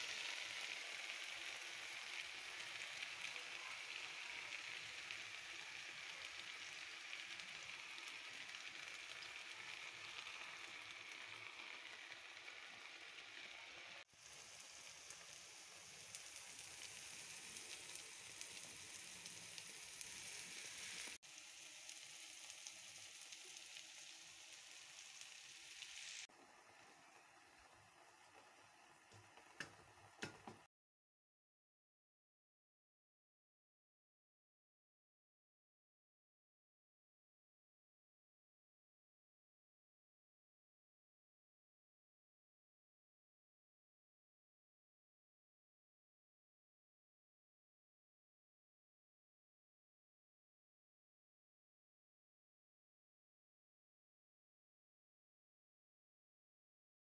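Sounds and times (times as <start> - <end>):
greens sizzling in a pan: 0.0 - 30.7.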